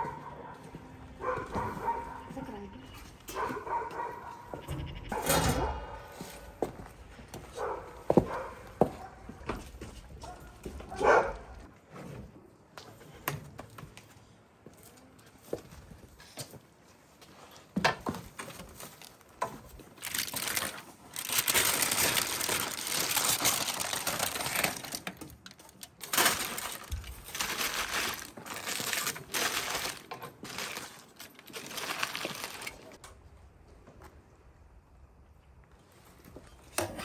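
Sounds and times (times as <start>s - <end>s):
crackling rustling handling noise: 14.9s - 33.1s.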